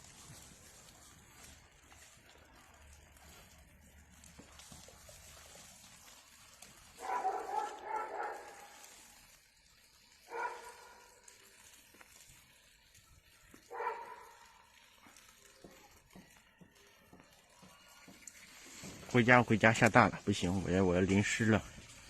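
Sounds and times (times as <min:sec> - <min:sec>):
dog barking: 0:07.0 - 0:08.8, 0:10.3 - 0:11.1, 0:13.7 - 0:14.5.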